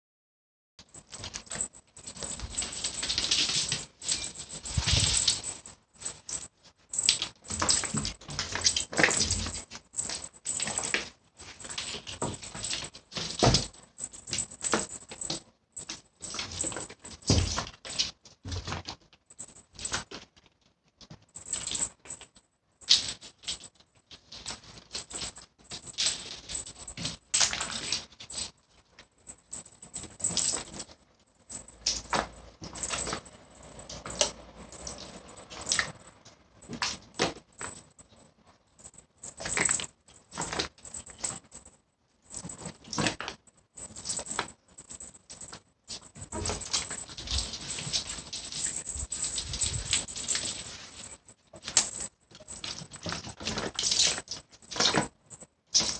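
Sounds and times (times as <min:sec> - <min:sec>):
ball tapping and rattling: 0:00.9 - 0:55.9.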